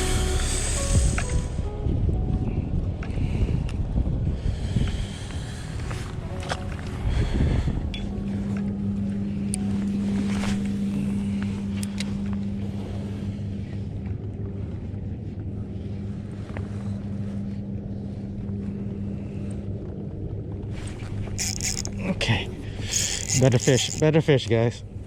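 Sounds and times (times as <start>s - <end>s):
wind on microphone: 0.0s - 24.1s
boat motor humming: 0.0s - 25.0s.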